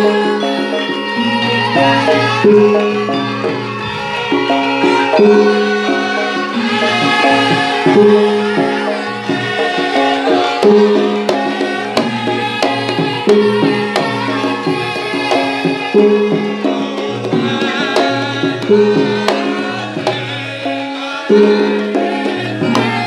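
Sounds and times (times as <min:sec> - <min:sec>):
hand-drum strokes: 0:00.0 - 0:23.0
held repeating melody: 0:00.0 - 0:23.0.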